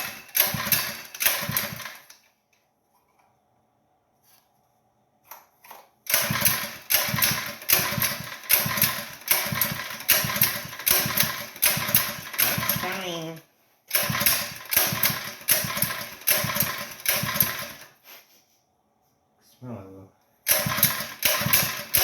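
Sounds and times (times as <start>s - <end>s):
small gasoline engine cranking: 0.0s - 2.2s, 6.1s - 13.2s, 13.9s - 17.9s, 20.5s - 22.0s.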